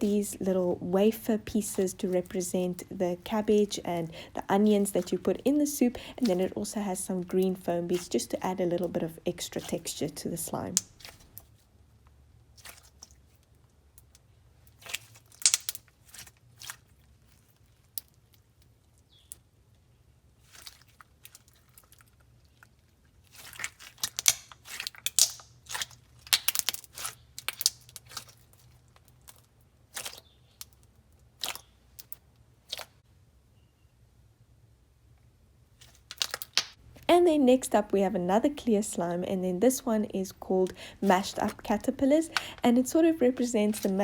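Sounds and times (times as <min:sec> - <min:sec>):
slime crackling and popping: 0:01.6 - 0:10.0, 0:12.5 - 0:19.4, 0:23.2 - 0:33.0, 0:35.8 - 0:37.1, 0:40.9 - 0:44.0.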